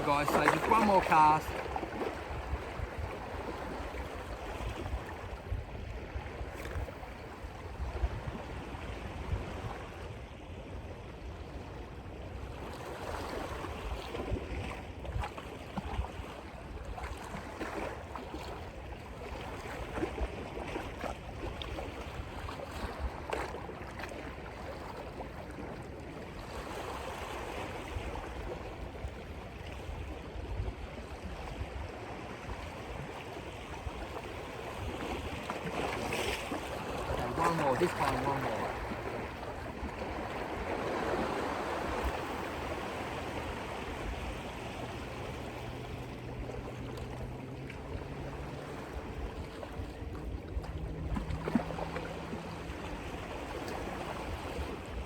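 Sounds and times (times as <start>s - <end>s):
surf washing against rocks: 0.0s - 9.9s, 31.5s - 55.0s
wind rumbling on microphone: 0.0s - 55.0s.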